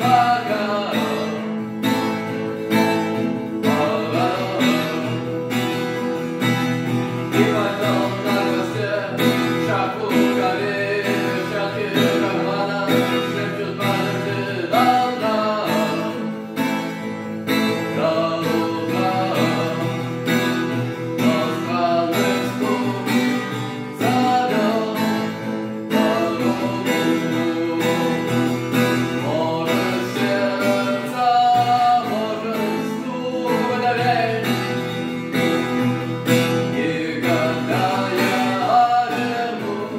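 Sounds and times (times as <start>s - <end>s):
acoustic guitar strumming: 0.0s - 39.9s
person singing: 0.0s - 39.9s.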